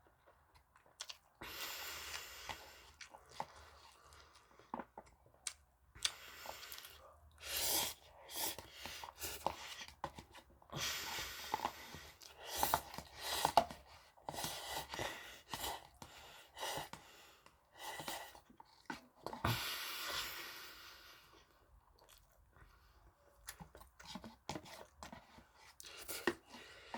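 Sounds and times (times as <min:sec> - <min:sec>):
wet chewing: 0:00.2 - 0:19.4
noodle slurping: 0:06.0 - 0:20.6.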